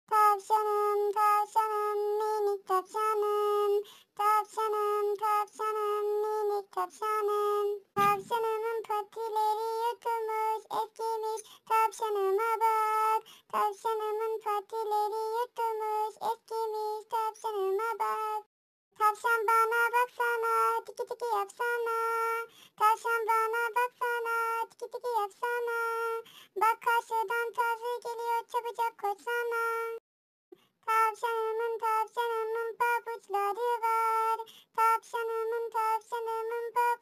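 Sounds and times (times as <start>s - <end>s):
high-pitched singing: 4.2s - 30.0s, 30.9s - 37.0s
low thump: 8.0s - 8.4s.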